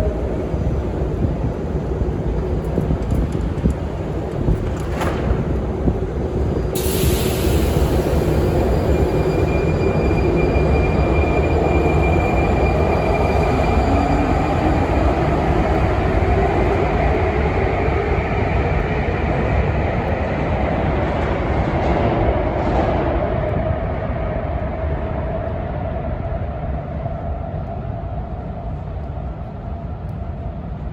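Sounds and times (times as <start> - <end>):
metro train rumbling: 0.0 - 30.9
high whine: 4.3 - 18.6.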